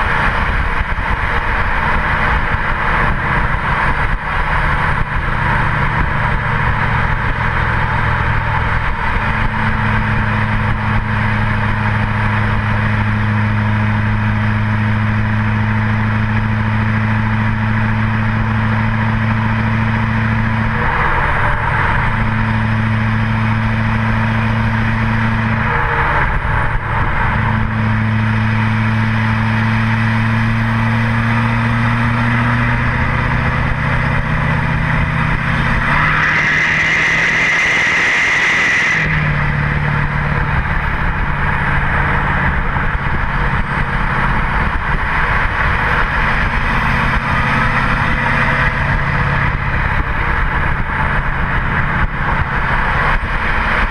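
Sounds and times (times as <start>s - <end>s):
diesel exhaust drone: 0.0s - 53.9s.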